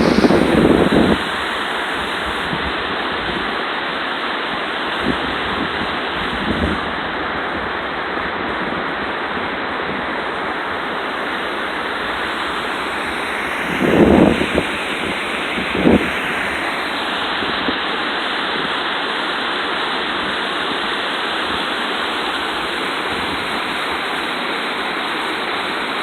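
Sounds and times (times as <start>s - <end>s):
wind buffeting microphone: 0.0s - 1.4s, 13.0s - 16.7s
small waterfall rushing: 0.0s - 26.0s.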